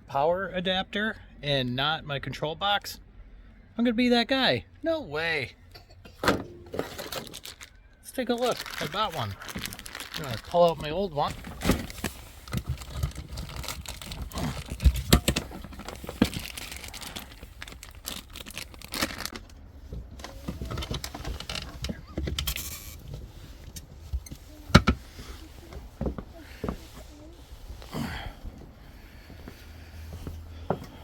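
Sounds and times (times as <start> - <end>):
packaging crinkling and rustling: 6.8 - 19.6.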